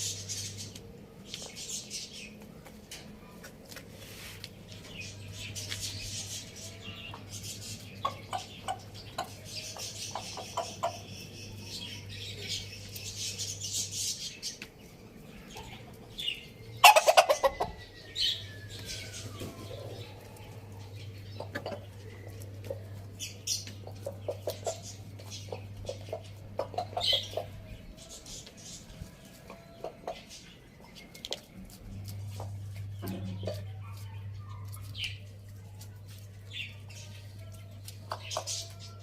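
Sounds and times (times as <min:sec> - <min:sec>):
chickens clucking: 0:00.0 - 0:39.0
chicken high calls: 0:16.8 - 0:22.8.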